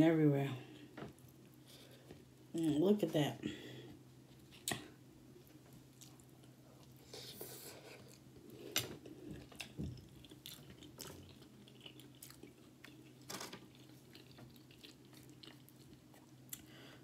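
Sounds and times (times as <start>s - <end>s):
wet chewing sounds: 5.5s - 16.9s.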